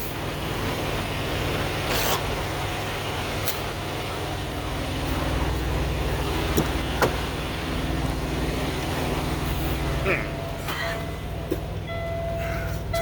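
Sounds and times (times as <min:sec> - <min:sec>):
diesel truck engine idling: 0:00.0 - 0:13.0
sharp clicks and knocks: 0:06.5 - 0:07.3.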